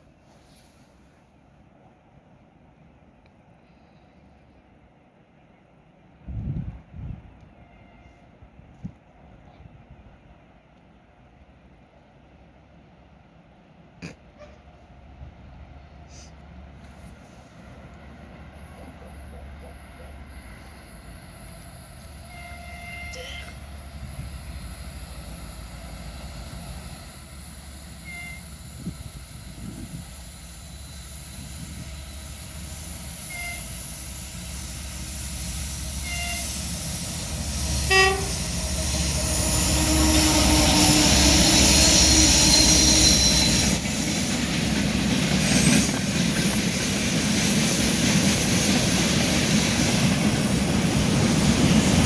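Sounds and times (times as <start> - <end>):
freight train engine: 0.0 - 52.0
train horn toots: 7.5 - 8.4, 22.0 - 24.3, 33.2 - 34.3, 35.9 - 43.6
high whine: 17.0 - 52.0.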